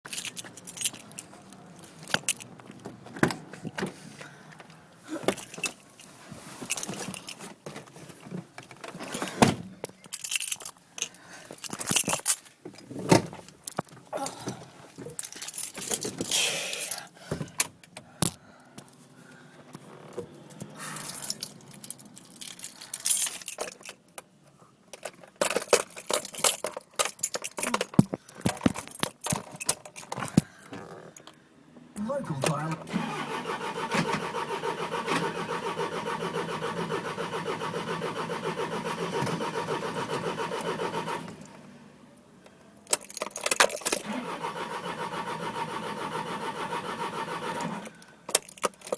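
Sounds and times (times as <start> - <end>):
keys jangling: 0.1 - 2.8, 5.1 - 7.5, 8.6 - 14.4, 15.2 - 18.4, 20.6 - 24.2, 24.9 - 31.4, 42.8 - 44.0, 47.8 - 48.9
handling clicks and knocks: 0.1 - 19.0, 19.6 - 31.4, 42.5 - 44.0, 48.0 - 48.9.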